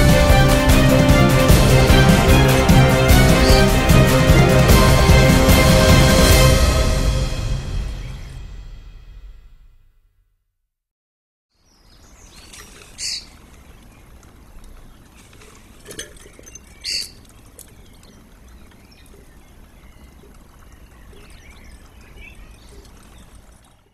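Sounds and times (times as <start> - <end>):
high bird calls: 3.2 - 3.8, 11.6 - 23.9.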